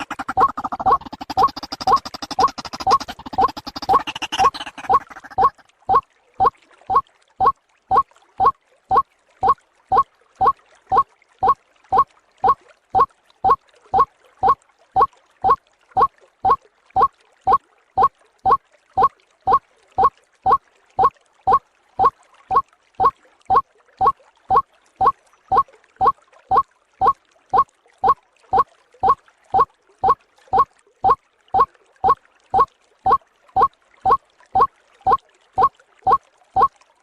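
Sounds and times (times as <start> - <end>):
waterhen calling: 0.0 - 5.6.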